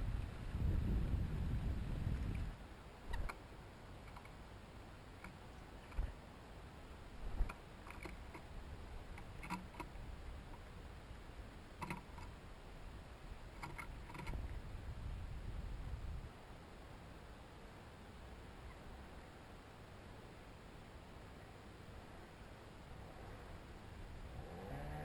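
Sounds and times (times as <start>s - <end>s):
wind rumble on microphone: 0.0s - 3.3s, 13.6s - 16.4s, 23.2s - 25.0s
small taps and clicks at bird feeder: 4.0s - 4.3s, 5.2s - 6.1s, 7.4s - 8.5s, 9.1s - 10.6s, 11.8s - 12.3s, 13.6s - 14.4s.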